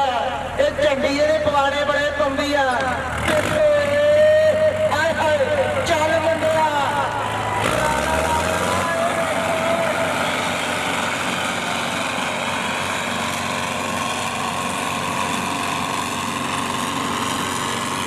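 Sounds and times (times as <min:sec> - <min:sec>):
tractor diesel engines under load: 0:00.0 - 0:18.0.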